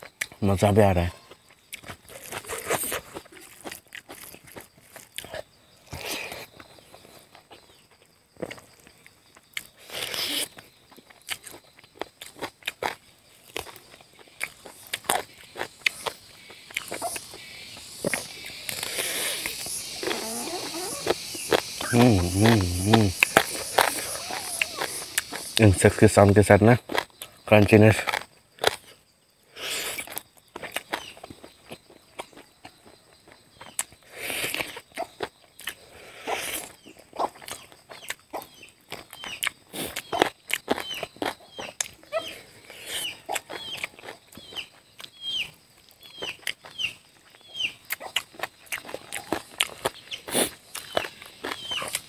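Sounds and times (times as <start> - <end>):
high-pitched insect chorus: 0.0 - 52.0
chewing and biting chicken: 1.3 - 5.4, 18.0 - 25.6, 29.8 - 45.2, 46.1 - 52.0
wet mouth clicks: 18.0 - 25.6.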